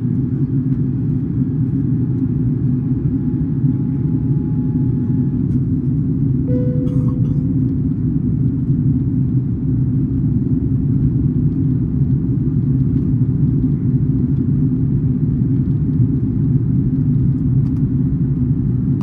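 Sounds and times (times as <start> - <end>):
airliner cabin engine rumble: 0.0 - 19.0
short electronic tone: 6.5 - 7.4.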